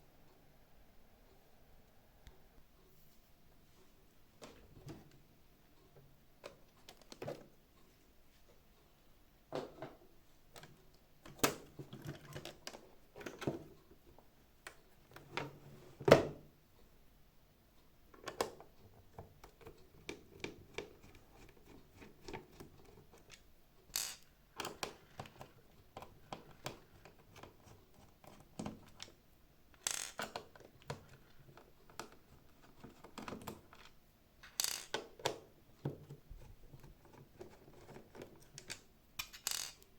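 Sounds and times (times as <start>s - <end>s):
plastic parts clicking and knocking: 6.4s - 7.6s, 9.6s - 13.8s, 18.1s - 39.9s.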